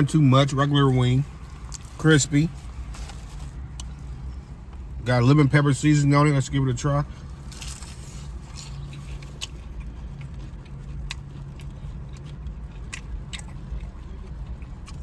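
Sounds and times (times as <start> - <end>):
steady low hum: 0.0 - 15.0
crunching fried chicken: 7.2 - 15.0
chewing close to microphone: 7.5 - 15.0.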